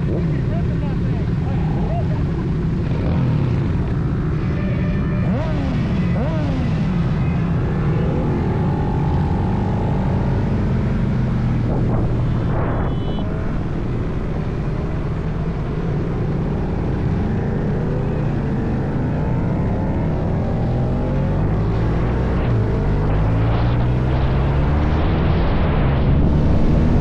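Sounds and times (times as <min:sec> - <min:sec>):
wind noise: 0:08.8 - 0:16.8.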